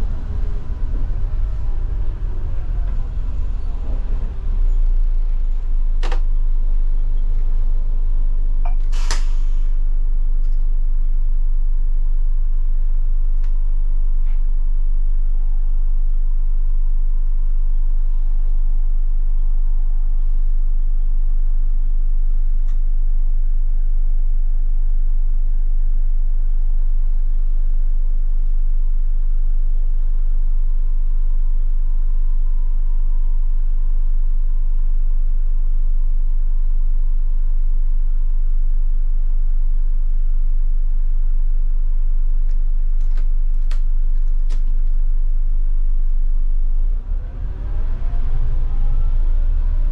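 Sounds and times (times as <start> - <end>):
bus engine rumbling: 0.0 - 16.2, 42.5 - 49.9.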